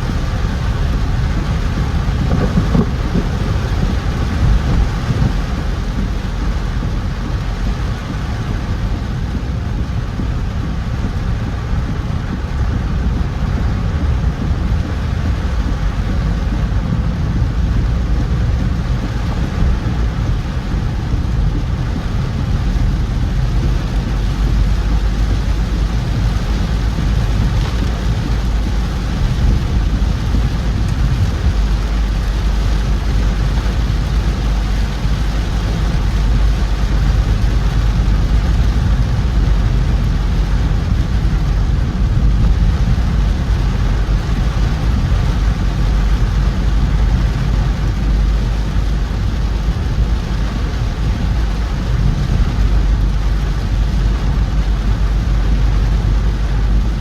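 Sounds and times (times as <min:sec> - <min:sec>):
car engine and tyres rumbling: 0:00.0 - 0:57.0
rain hissing: 0:00.0 - 0:57.0.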